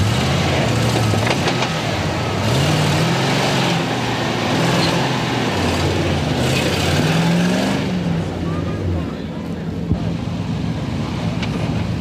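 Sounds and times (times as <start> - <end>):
engine revving under load: 0.0 - 9.1.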